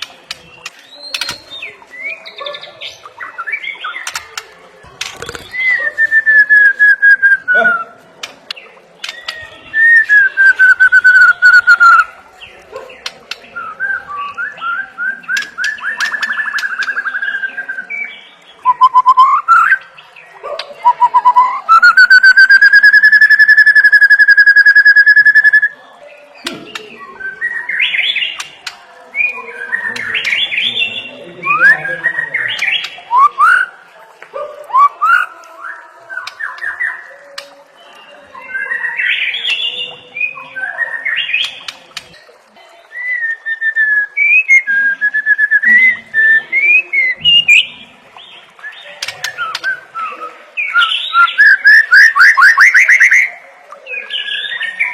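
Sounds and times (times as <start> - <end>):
shama singing whistled song: 9.0 - 12.1, 13.5 - 19.9, 20.8 - 25.8, 31.4 - 33.7, 42.9 - 47.8, 48.6 - 53.4.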